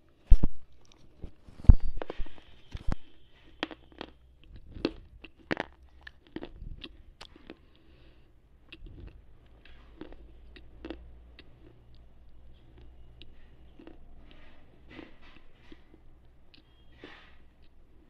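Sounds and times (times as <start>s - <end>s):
slate pencil being chewed: 2.1s - 7.9s.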